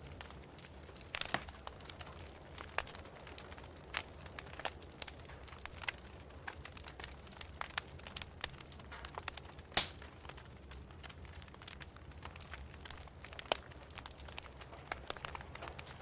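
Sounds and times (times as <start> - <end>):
wood fire crackling: 0.0 - 16.0
loud pop of burning wood: 8.8 - 10.2.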